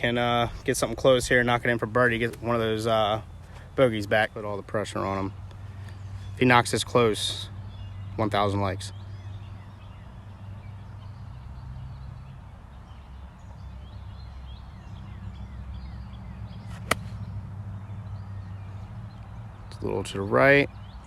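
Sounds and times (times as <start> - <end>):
golf club striking ball: 16.7 - 17.3.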